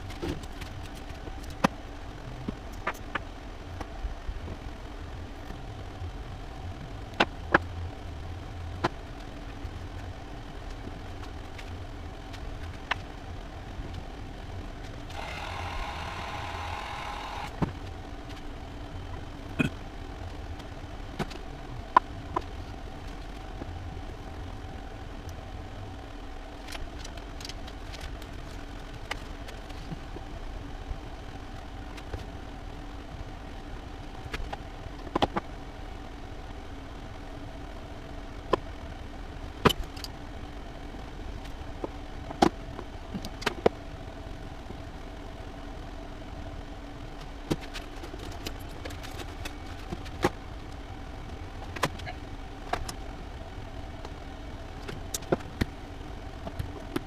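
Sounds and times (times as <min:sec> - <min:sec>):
steady low hum: 0:00.0 - 0:57.0
buzzing noise: 0:15.1 - 0:17.8.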